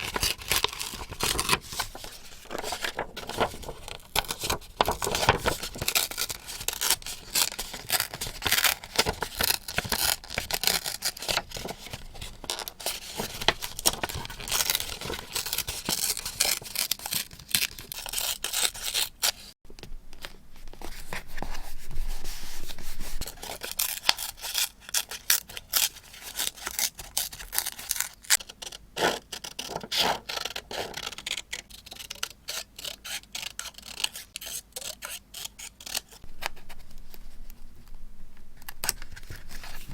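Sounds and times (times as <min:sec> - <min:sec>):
paper rustling and tearing: 0:00.0 - 0:19.5, 0:38.5 - 0:39.9.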